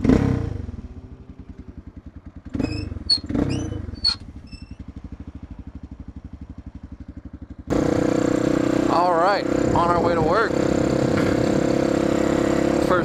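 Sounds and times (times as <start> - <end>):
motorcycle engine idling: 0.0 - 13.0
short high squeaks: 2.6 - 4.9.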